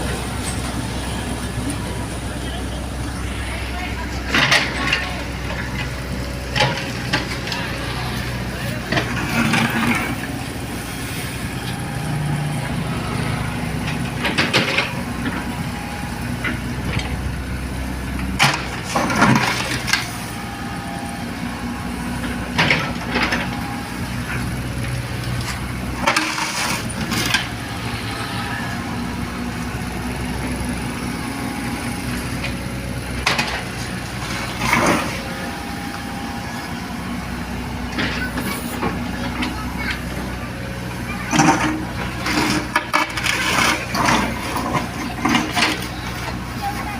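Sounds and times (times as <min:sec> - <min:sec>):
excavator diesel engine running: 0:00.0 - 0:46.9
bucket scraping and clattering: 0:08.8 - 0:10.4, 0:18.4 - 0:20.4, 0:25.2 - 0:28.3, 0:33.2 - 0:35.4, 0:41.2 - 0:46.3.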